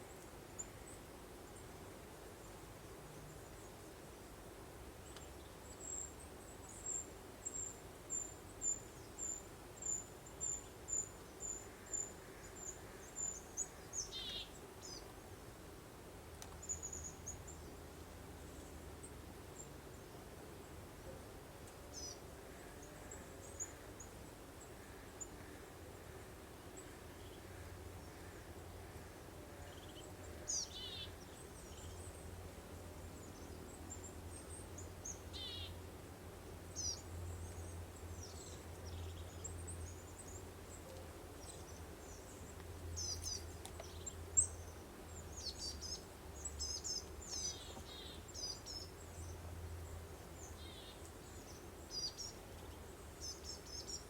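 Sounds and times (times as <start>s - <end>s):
faint breeze: 0.0s - 54.0s
songbirds chirping and trilling: 5.0s - 15.2s, 21.6s - 32.4s, 36.6s - 54.0s.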